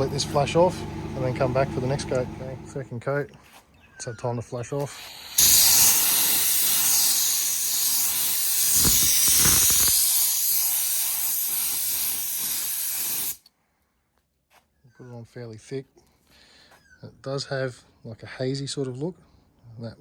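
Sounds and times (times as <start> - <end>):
spray gun hissing: 4.8 - 13.4.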